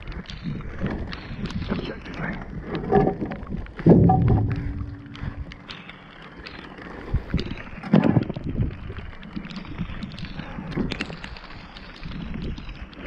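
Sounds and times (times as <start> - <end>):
scrap metal clunking and rattling: 2.9 - 5.6
loud thump with ringing tone: 3.9 - 5.4.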